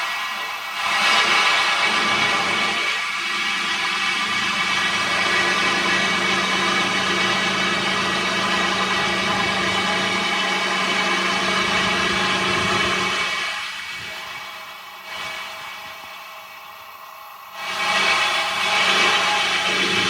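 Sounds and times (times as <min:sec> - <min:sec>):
heavy engine humming: 0:04.1 - 0:15.0.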